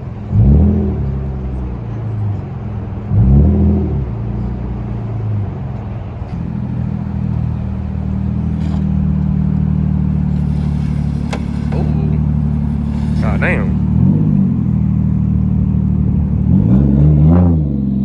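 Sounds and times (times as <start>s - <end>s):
car engines idling: 4.0s - 16.9s.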